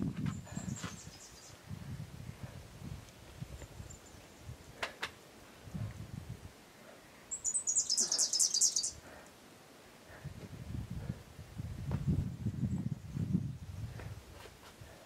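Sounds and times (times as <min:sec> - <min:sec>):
bird chirping in high trill: 0:07.3 - 0:09.0.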